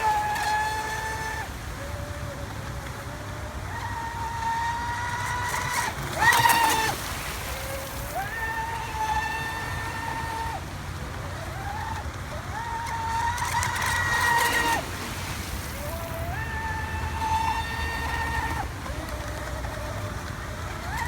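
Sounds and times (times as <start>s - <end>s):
electric motor whining: 0.0s - 21.0s.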